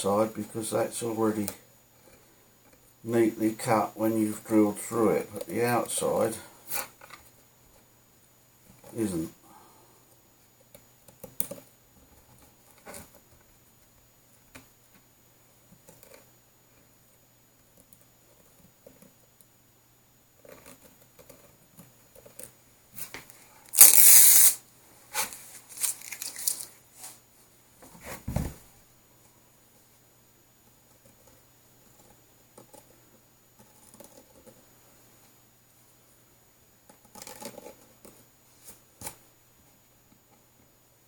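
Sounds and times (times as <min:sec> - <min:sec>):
loud tearing scrape: 0:23.7 - 0:26.7.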